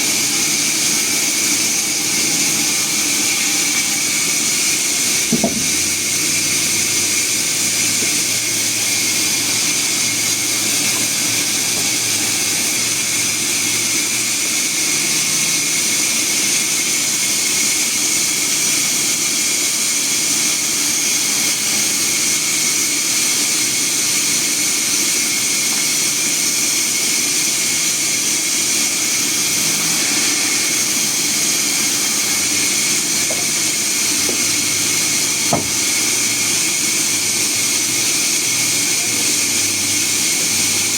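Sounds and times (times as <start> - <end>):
sawmill saw running: 0.0 - 40.9
sharp knock: 5.3 - 5.8, 35.5 - 35.8.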